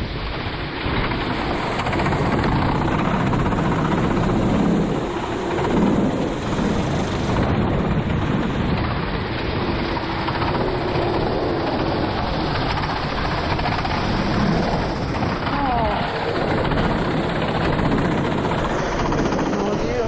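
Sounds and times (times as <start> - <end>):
wind noise: 0.0 - 20.0
kart engine at speed: 0.2 - 20.0
rain spray rushing: 10.3 - 16.7.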